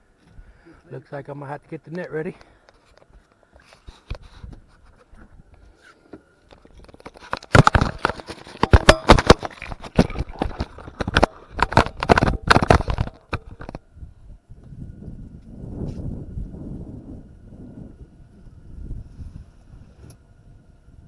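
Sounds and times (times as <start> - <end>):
gear clattering in a boat: 6.6 - 13.8.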